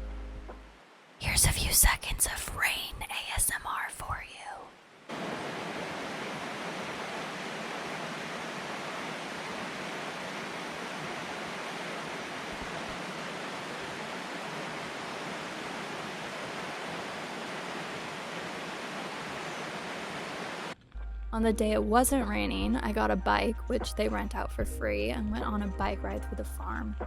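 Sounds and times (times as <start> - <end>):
rain falling: 4.8 - 20.8.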